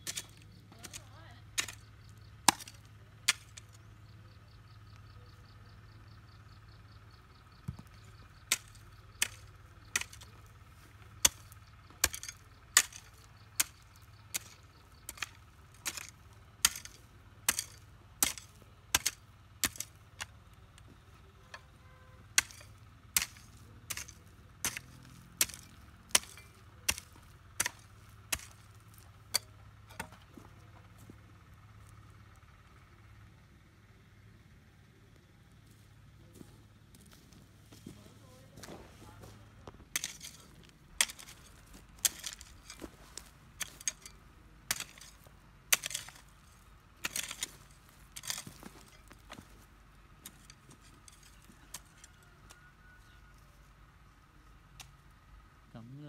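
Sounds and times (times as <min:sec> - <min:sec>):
blade chopping grass stalks: 0:00.0 - 0:03.8, 0:07.9 - 0:10.5, 0:11.2 - 0:20.4, 0:22.4 - 0:30.2, 0:39.9 - 0:49.6.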